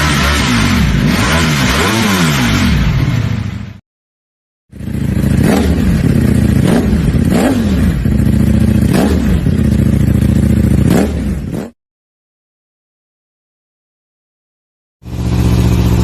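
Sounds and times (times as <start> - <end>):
motorcycle engine revving: 0.0 - 3.8, 4.7 - 11.8, 15.0 - 16.0.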